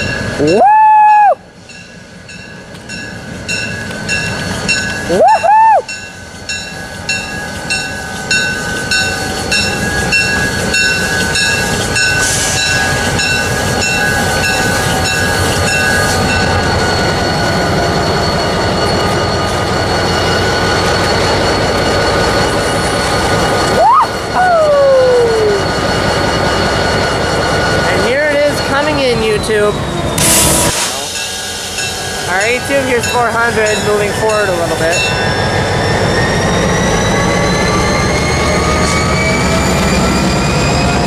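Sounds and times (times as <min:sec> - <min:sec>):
locomotive bell ringing: 0:00.0 - 0:00.8, 0:01.6 - 0:41.0
moving train rumble: 0:00.0 - 0:41.0
person whooping: 0:00.4 - 0:01.4, 0:05.1 - 0:05.9, 0:23.8 - 0:25.7.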